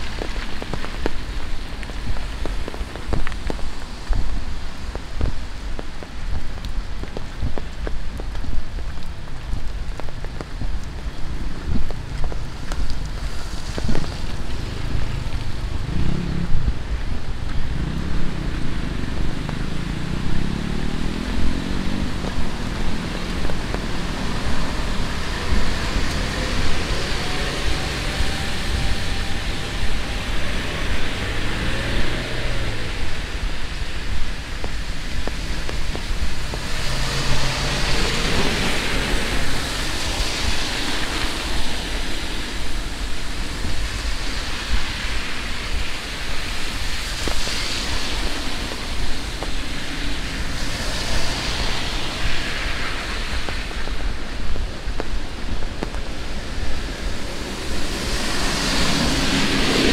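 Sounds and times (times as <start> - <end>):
heavy rain falling: 0.0 - 59.9
vehicle passing on wet road: 0.0 - 59.9.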